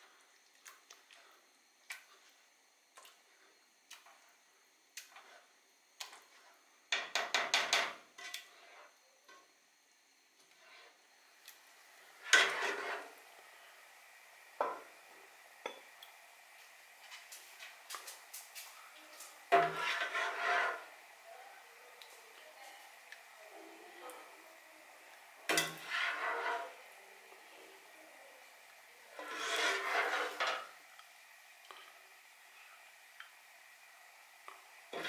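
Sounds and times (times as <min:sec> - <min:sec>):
utensils clattering against pot: 0:12.2 - 0:13.1, 0:19.5 - 0:20.9, 0:25.5 - 0:26.8, 0:29.2 - 0:30.7.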